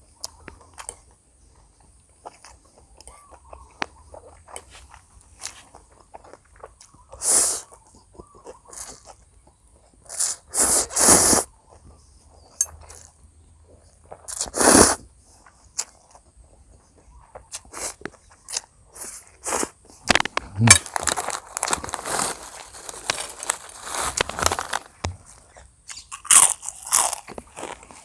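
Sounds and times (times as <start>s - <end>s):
person chewing: 0.1s - 28.0s
loud bursts of eating noise: 6.2s - 9.3s, 10.0s - 11.6s, 14.1s - 15.0s.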